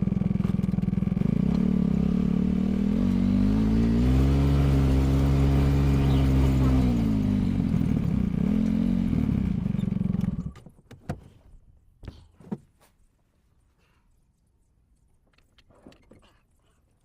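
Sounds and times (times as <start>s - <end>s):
vehicle engine running loudly: 0.0s - 10.5s.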